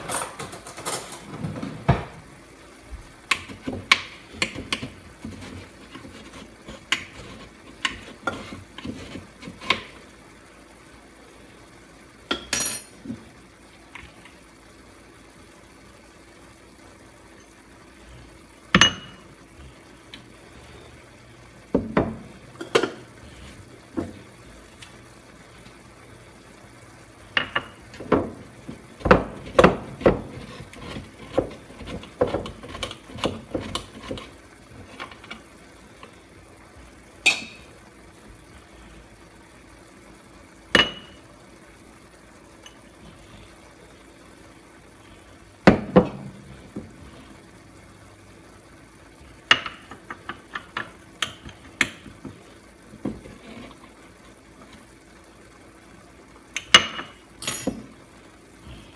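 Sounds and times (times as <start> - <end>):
utensils and dishes clattering: 0.0 - 2.1.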